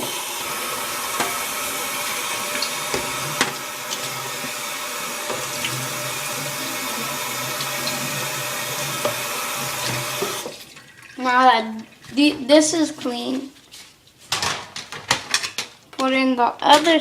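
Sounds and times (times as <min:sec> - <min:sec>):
tap running into sink: 0:00.0 - 0:10.6.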